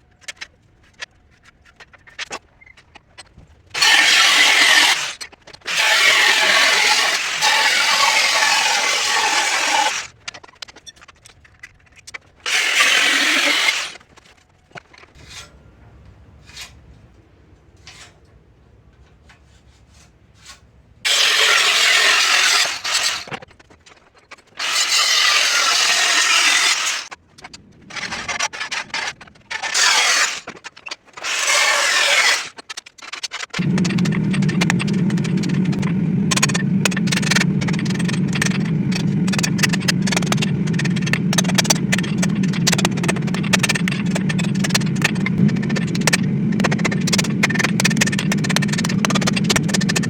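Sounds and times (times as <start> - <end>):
power tool working steel: 3.8 - 10.1, 12.5 - 14.0, 21.1 - 23.3, 24.6 - 27.1, 31.2 - 32.6, 33.6 - 50.0.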